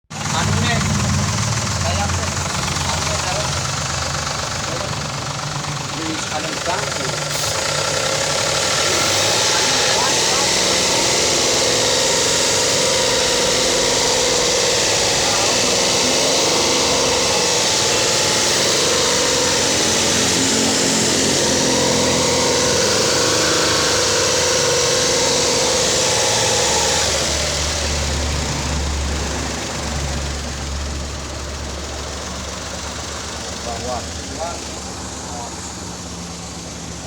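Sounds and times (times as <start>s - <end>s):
engine running and idling: 0.0s - 37.0s.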